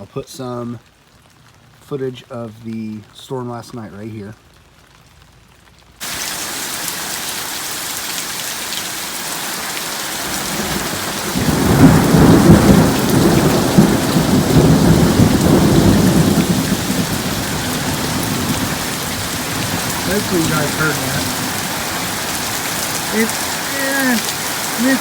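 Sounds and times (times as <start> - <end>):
heavy rain: 0.0 - 25.0
thunder rolling: 10.3 - 23.2.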